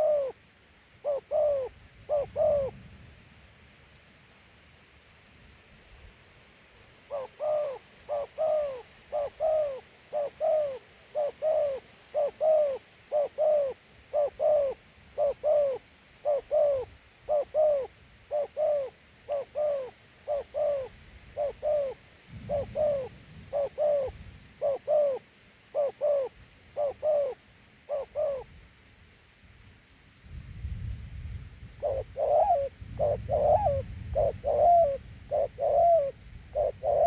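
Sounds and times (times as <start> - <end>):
dove cooing: 0.0 - 0.4, 1.0 - 2.8, 7.0 - 28.5, 31.8 - 37.0.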